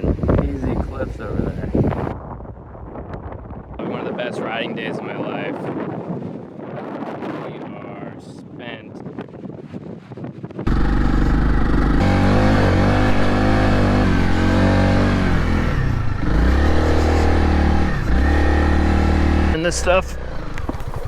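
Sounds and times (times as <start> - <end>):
motorcycle engine revving: 10.6 - 20.7.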